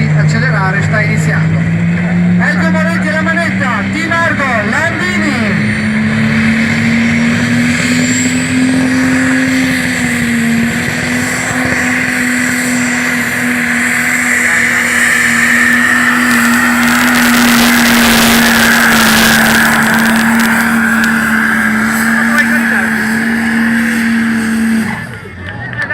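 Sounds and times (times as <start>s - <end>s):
tractor engine at full throttle: 0.0s - 25.9s
crackling rattle: 13.3s - 22.5s.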